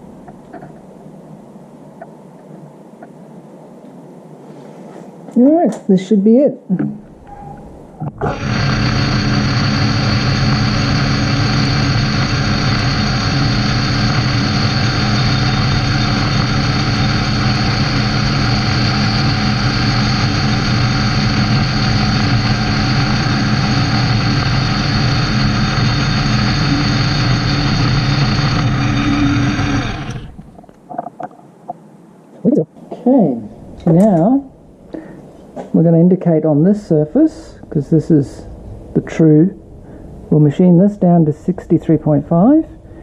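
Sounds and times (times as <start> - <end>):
metal lathe drone with whine: 7.1 - 30.6.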